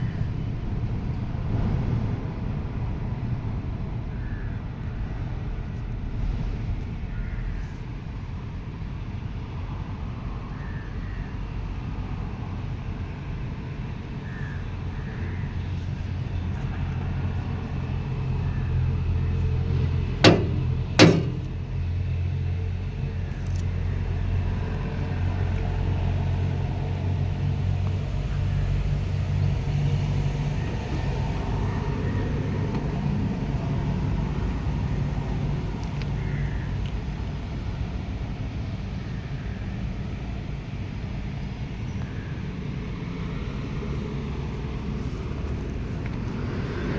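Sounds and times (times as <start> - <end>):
tractor diesel engine rumbling: 13.8 - 38.6
sharp loud knocks: 20.2 - 21.7.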